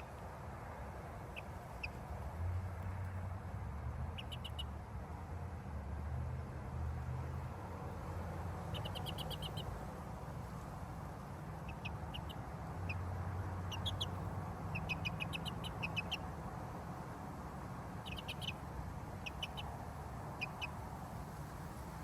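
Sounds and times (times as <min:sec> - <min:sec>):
high bird chirps: 0:04.2 - 0:04.7, 0:08.7 - 0:09.7, 0:13.7 - 0:16.3, 0:18.0 - 0:18.6, 0:19.2 - 0:19.7.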